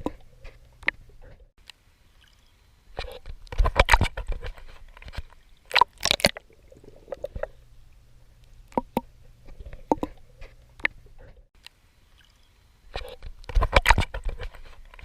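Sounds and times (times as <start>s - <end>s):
water splashing from swimming strokes: 3.0s - 7.6s
water dripping: 5.1s - 9.2s.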